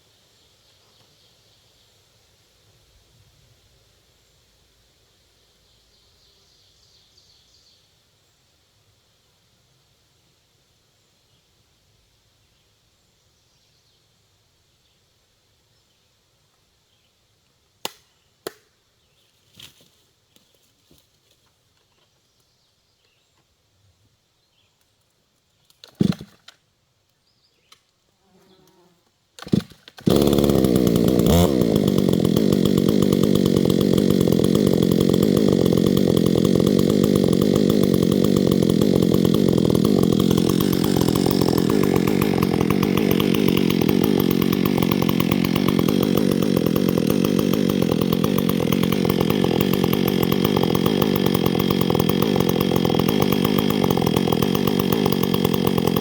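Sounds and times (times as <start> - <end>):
chainsaw running: 29.4 - 56.0.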